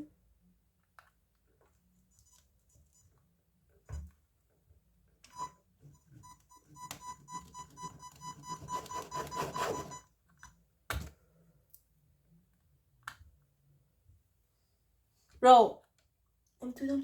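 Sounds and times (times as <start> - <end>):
high electronic beeping: 6.2 - 10.0.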